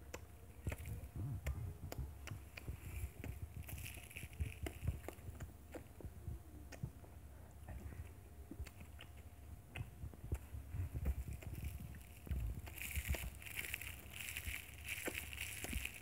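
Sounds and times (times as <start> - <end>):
chewing: 0.1 - 6.9, 7.6 - 16.0
small mouth clicks: 0.1 - 14.0
lip smacks: 0.1 - 16.0
soft low thuds: 9.4 - 16.0.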